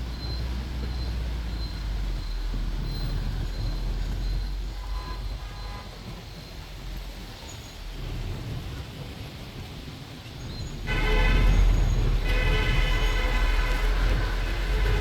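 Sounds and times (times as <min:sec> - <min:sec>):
bus engine and road rumble: 0:00.0 - 0:15.0
bus horn toot: 0:10.8 - 0:15.0.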